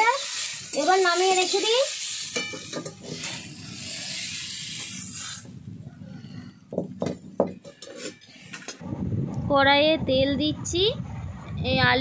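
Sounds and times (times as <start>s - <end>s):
hot oil sizzling: 0.0s - 5.6s.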